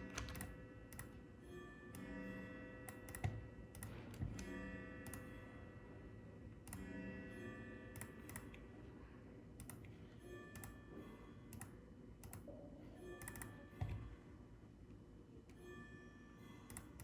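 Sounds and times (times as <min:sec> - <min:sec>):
computer keyboard clicks: 0:00.0 - 0:01.1, 0:02.9 - 0:03.9, 0:08.0 - 0:08.5, 0:11.5 - 0:12.5, 0:13.2 - 0:14.0
faint background music: 0:00.0 - 0:17.0.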